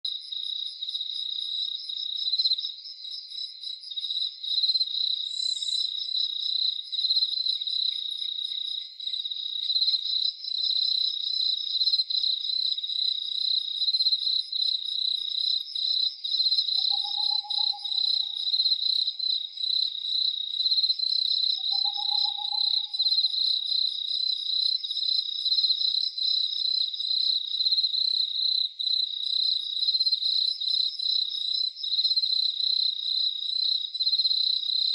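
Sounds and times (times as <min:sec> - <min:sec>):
crickets chirping: 0:00.1 - 0:34.9
low animal call: 0:16.8 - 0:18.7.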